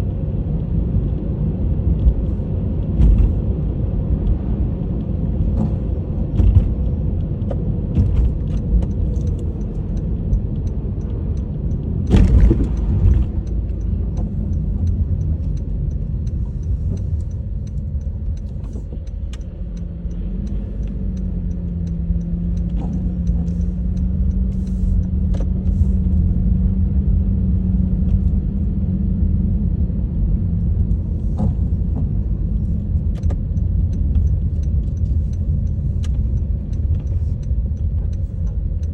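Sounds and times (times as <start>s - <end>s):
tyre and engine rumble: 0.0s - 38.9s
car jolt: 12.1s - 13.4s.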